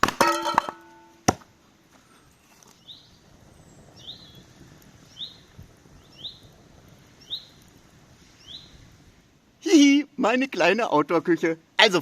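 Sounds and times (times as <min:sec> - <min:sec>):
firewood being chopped: 0:00.0 - 0:01.6
small bird chirping: 0:02.3 - 0:04.4, 0:05.0 - 0:06.5, 0:07.1 - 0:07.6, 0:08.4 - 0:08.8.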